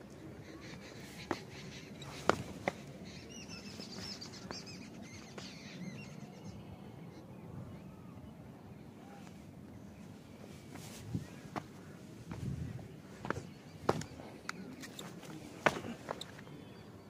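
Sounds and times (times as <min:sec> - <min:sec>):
small birds chirping: 0:00.0 - 0:17.0
low rustle on rock: 0:10.0 - 0:16.4.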